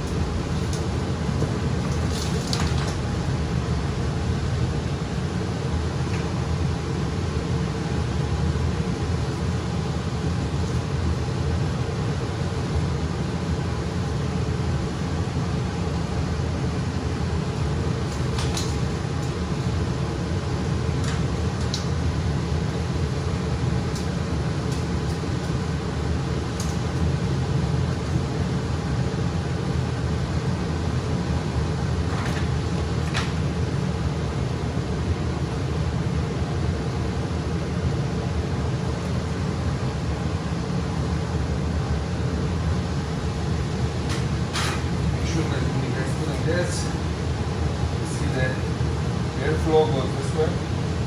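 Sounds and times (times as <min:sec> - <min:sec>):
furnace blower running: 0:00.0 - 0:51.0.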